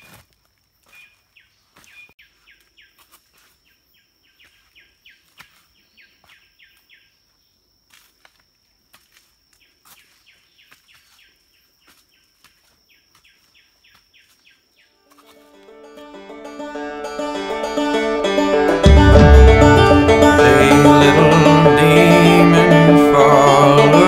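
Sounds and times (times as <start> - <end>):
footsteps on leaf litter: 0.0 - 3.8, 4.4 - 6.4, 7.9 - 15.7.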